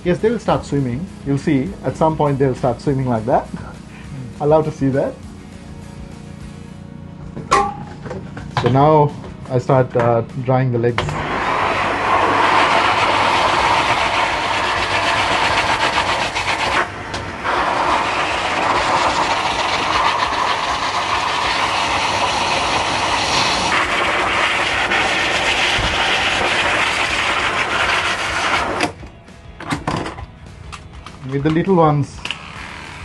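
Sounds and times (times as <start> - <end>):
grooming dryer blowing air: 11.0 - 29.0, 32.2 - 33.0.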